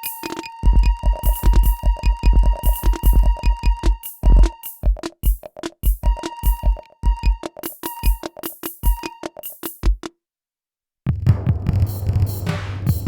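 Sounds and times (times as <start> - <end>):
deep kick drum thuds: 0.7 - 7.4.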